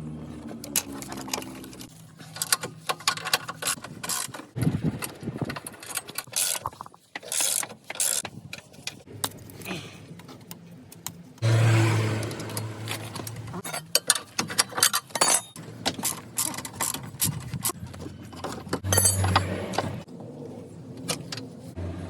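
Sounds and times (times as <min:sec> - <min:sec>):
hand tools clinking on metal: 0:12.6 - 0:17.6, 0:18.3 - 0:19.8.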